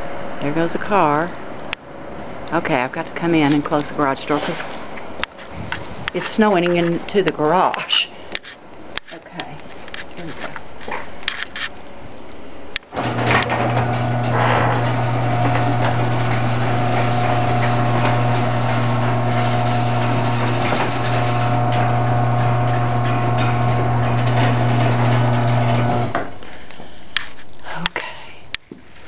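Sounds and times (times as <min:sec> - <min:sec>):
garage door opener motor humming: 0:12.8 - 0:26.6.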